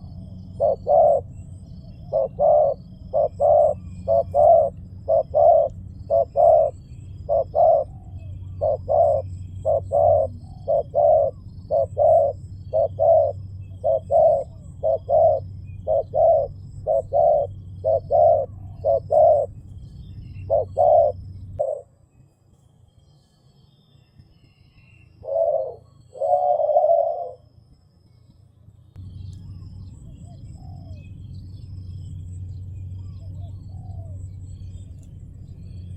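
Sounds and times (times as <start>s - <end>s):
dove cooing: 0.0s - 21.9s, 25.2s - 27.4s, 30.2s - 31.1s, 33.0s - 34.6s
low hum: 0.0s - 35.9s.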